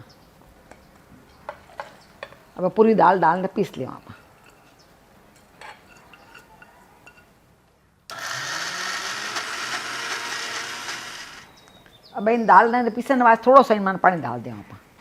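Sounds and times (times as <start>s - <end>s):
mixer-grinder motor running: 8.1s - 11.5s.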